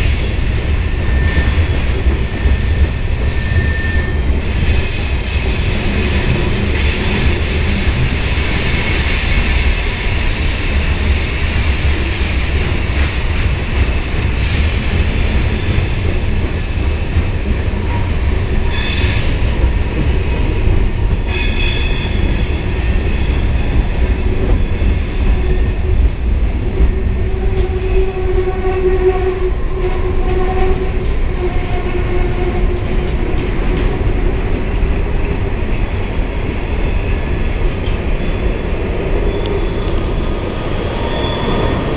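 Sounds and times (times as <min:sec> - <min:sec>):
freight train wheels rumbling: 0:00.0 - 0:41.9
wheels squealing: 0:01.0 - 0:07.8, 0:38.1 - 0:41.9.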